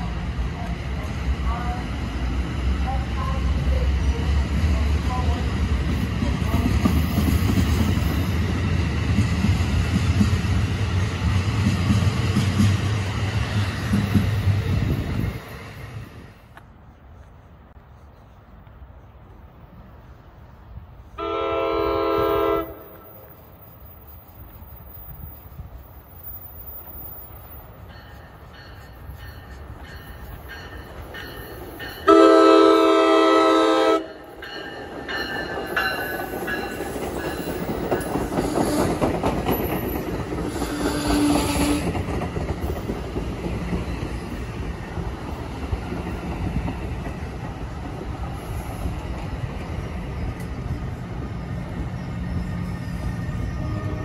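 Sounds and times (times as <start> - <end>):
train rumbling: 0.0 - 54.0
train horn blast: 21.2 - 23.2, 32.1 - 34.1, 40.5 - 41.9, 53.5 - 54.0
wheels clattering on rails: 34.2 - 53.5.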